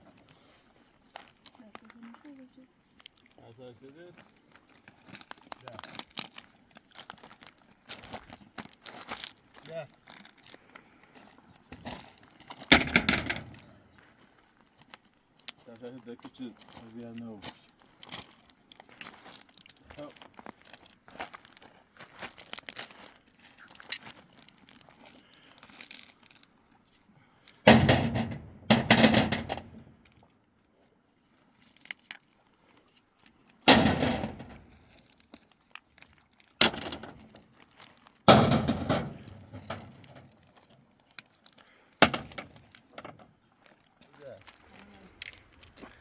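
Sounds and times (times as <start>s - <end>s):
stones crashing and clattering: 12.6s - 13.8s, 33.7s - 34.7s, 36.6s - 37.5s, 38.3s - 40.3s, 42.0s - 43.2s.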